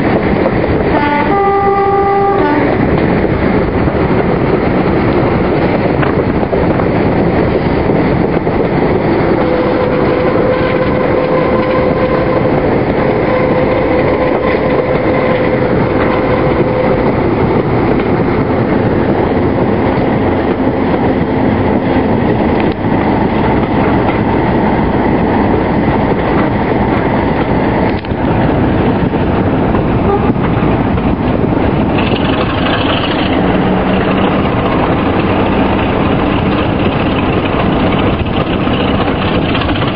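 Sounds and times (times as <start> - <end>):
diesel locomotive engine working hard: 0.0 - 39.9
steady low note: 7.8 - 27.0.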